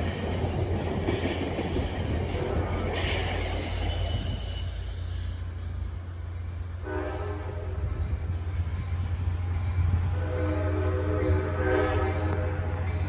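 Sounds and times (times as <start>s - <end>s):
idling locomotive rumble: 0.0s - 13.0s
locomotive horn blast: 6.8s - 8.0s, 10.1s - 12.7s.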